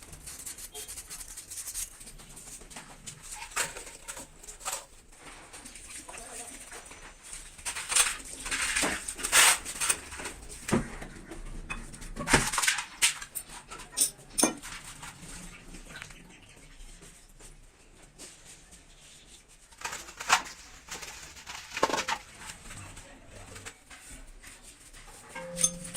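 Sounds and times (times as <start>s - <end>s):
metal tools clinking: 13.2s - 14.8s, 25.1s - 25.9s.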